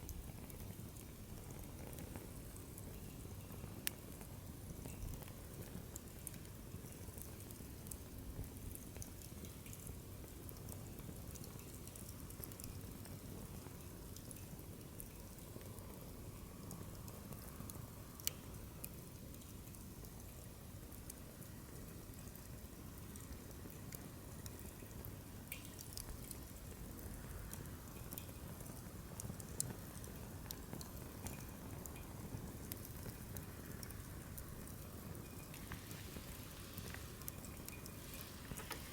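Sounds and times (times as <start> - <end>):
low rumble of flames: 0.0 - 38.9
wood fire crackling and popping: 0.0 - 38.9
fire popping and snapping: 22.4 - 38.9
low rush of fire: 33.1 - 38.9.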